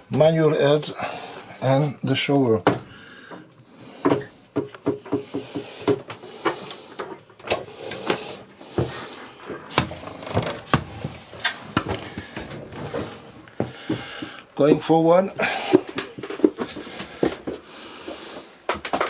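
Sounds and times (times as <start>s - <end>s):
footsteps knocking: 4.1s - 6.2s, 9.7s - 19.0s.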